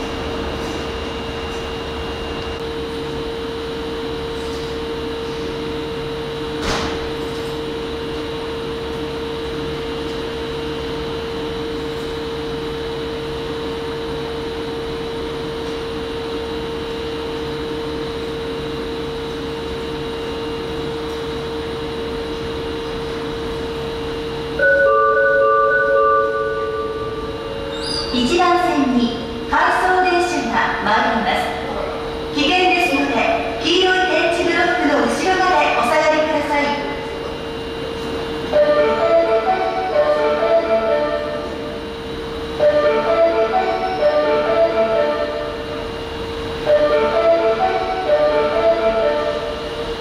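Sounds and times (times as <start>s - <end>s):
electric train running: 7.2s - 30.9s, 37.0s - 50.0s.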